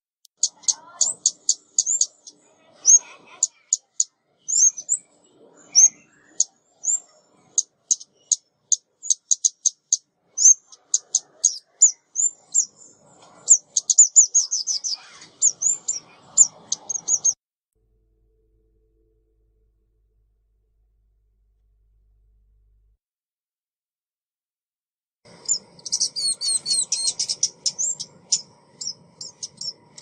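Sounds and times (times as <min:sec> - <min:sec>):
bird calling in high chips: 0:00.4 - 0:05.0, 0:25.4 - 0:30.0.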